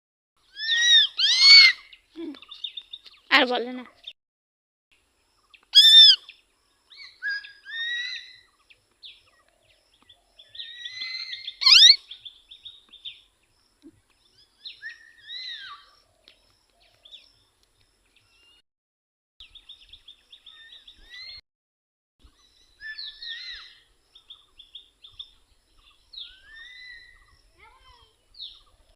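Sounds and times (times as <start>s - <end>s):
parrot screeching: 0.6s - 1.8s, 5.8s - 6.2s, 7.2s - 8.4s, 10.7s - 12.0s
parrot squawking and chattering: 0.6s - 1.8s, 5.8s - 6.2s, 11.0s - 12.0s.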